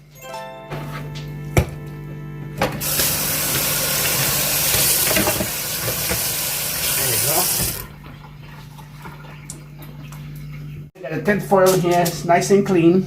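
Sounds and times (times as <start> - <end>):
tap water running into sink: 2.8 - 10.2.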